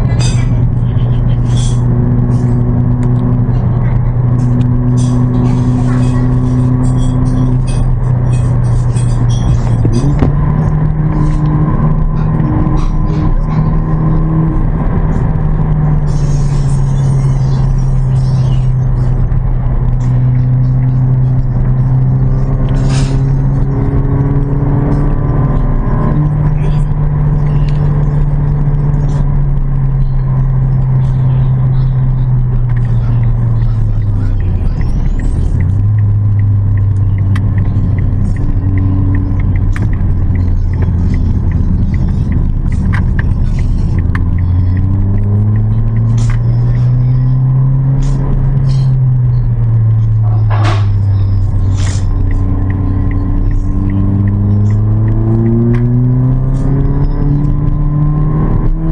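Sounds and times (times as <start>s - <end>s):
car engine running: 0.0s - 58.9s
light regular ticking: 0.0s - 58.9s.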